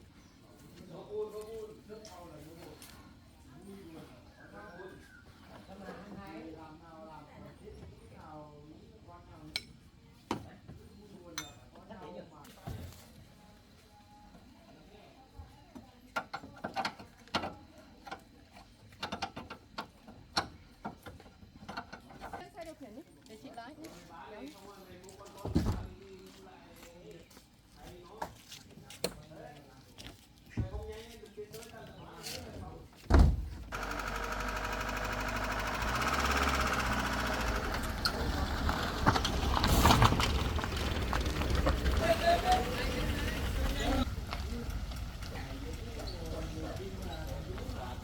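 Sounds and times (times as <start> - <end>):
small engine running: 33.7 - 48.0.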